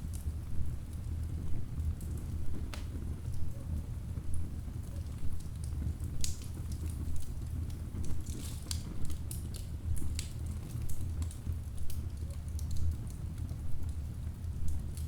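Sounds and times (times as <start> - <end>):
wood fire crackling: 0.0 - 3.5, 4.1 - 15.0
burning logs popping: 1.8 - 3.0, 5.3 - 15.0.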